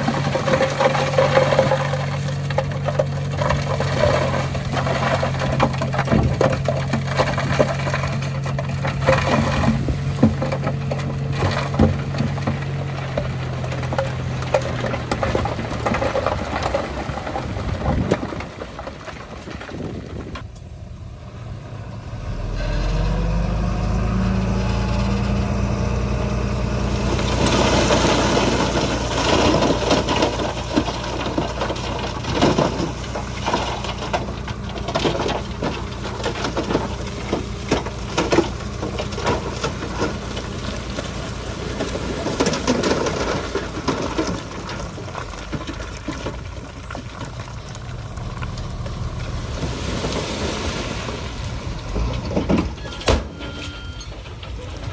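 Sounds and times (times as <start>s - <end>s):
bulldozer diesel engine running: 0.0s - 54.9s
metallic clanks and knocks: 51.7s - 54.9s.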